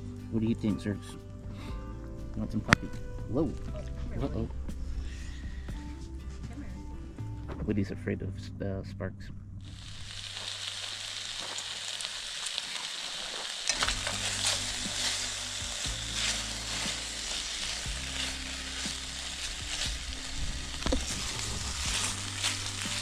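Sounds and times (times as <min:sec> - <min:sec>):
food sizzling and popping in a pan: 0:09.6 - 0:23.0.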